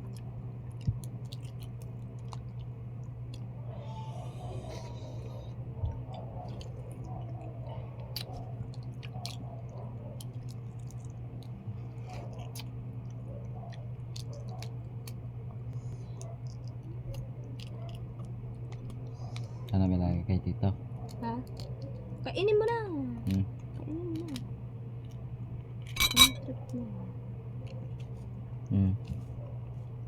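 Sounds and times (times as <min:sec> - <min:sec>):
close-up chewing: 0:00.0 - 0:19.8, 0:20.8 - 0:22.2
low electrical hum: 0:00.0 - 0:30.0.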